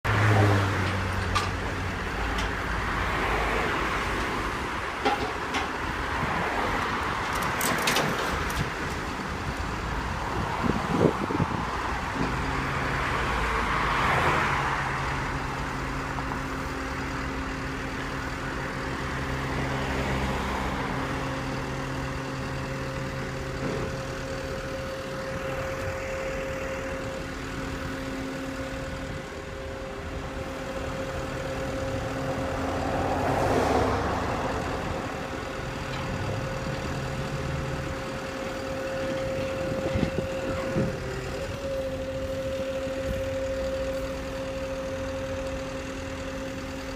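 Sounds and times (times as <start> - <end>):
passing traffic: 0.0 - 46.9
vehicle engine idling: 14.6 - 46.9.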